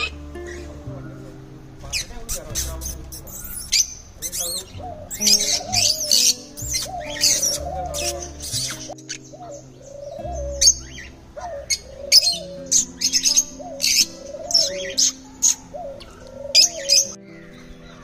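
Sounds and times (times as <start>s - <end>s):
flock of birds chirping: 0.0s - 18.0s.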